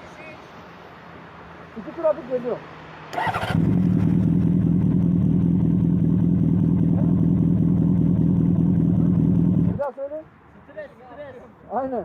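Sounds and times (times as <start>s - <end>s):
motorcycle engine idling: 3.2s - 9.8s.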